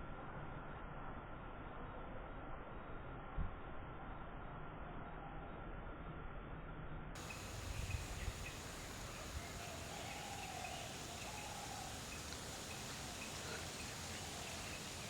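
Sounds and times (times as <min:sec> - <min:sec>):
outdoor background hiss: 0:05.7 - 0:15.0
distant bird calls: 0:07.2 - 0:15.0.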